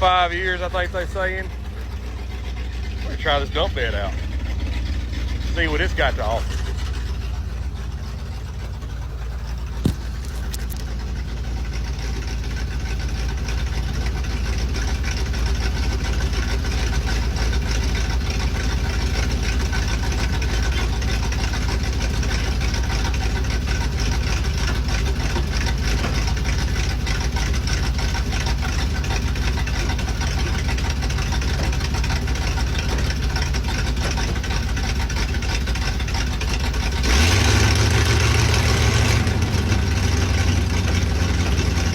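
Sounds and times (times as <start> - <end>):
dump truck engine idling: 0.0 - 41.9.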